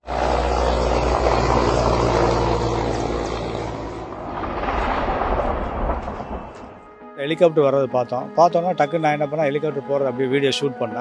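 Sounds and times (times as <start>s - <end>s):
helicopter flying overhead: 0.0s - 7.0s.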